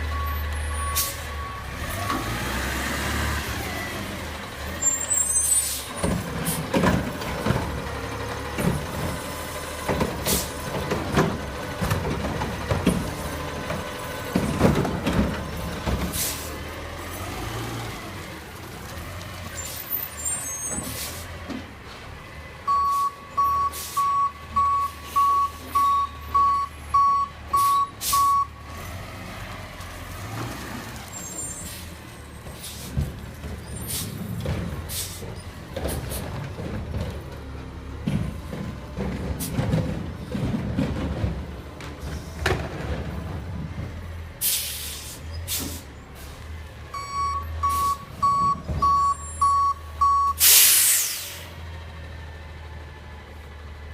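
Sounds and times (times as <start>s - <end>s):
truck clanks: 0.0s - 53.9s
reversing alarm beeps: 22.7s - 28.6s, 47.0s - 50.4s
air brake hisses: 34.9s - 35.2s, 44.4s - 46.4s, 50.4s - 51.6s.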